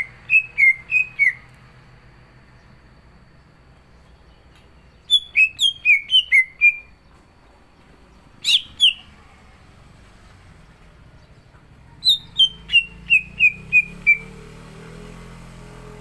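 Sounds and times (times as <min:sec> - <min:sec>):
bird singing whistled notes: 0:00.0 - 0:01.5, 0:04.1 - 0:07.1, 0:08.1 - 0:09.2, 0:10.6 - 0:14.8.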